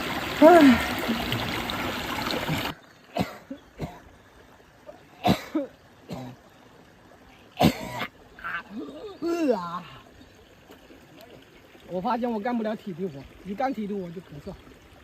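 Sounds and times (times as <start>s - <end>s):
water pouring from drain outlet: 0.0s - 2.7s.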